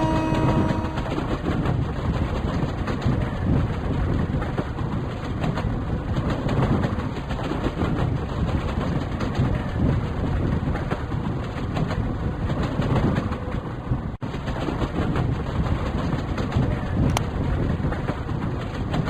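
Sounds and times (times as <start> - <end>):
train horn: 0.0 - 1.2
train rumbling: 0.0 - 19.0.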